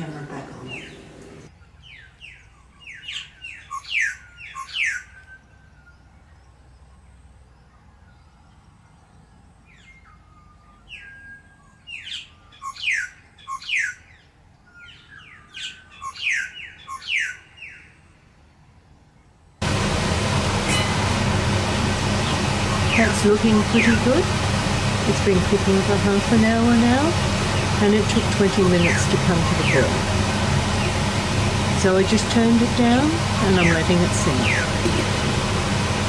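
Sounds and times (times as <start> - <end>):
songbird chirping: 0.0 - 19.6, 26.1 - 31.1, 31.8 - 34.8.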